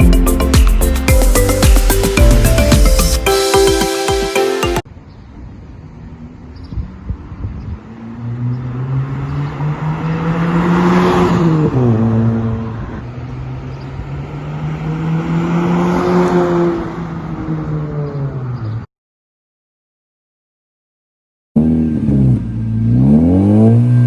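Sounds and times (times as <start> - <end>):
loud car exhaust passing: 7.8 - 18.6, 21.6 - 24.0.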